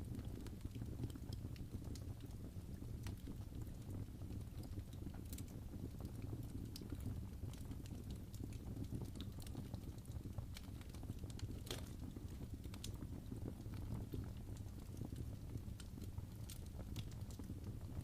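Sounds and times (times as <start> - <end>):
low rumble of flames: 0.0 - 18.0
wood fire crackling and popping: 0.0 - 18.0.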